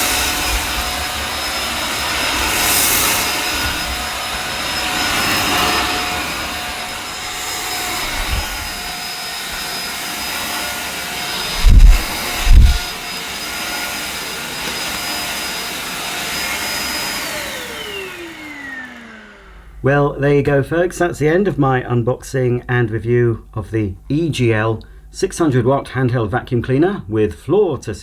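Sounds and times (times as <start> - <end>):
vacuum cleaner running: 0.0 - 20.2
loud dull thuds: 11.6 - 12.9.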